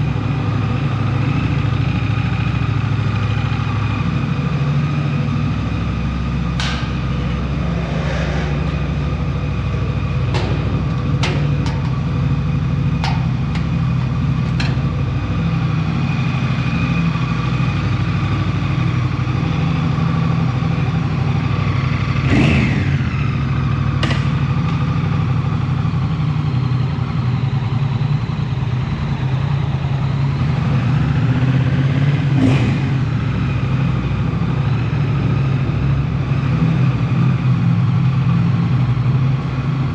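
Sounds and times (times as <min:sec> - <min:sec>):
motorcycle engine humming: 0:00.0 - 0:39.9.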